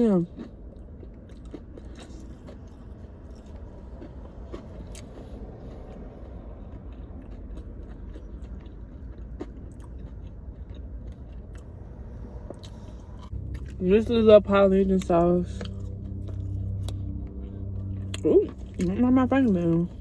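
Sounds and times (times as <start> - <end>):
chewing food: 0.0 - 20.0
low hum: 0.0 - 20.0.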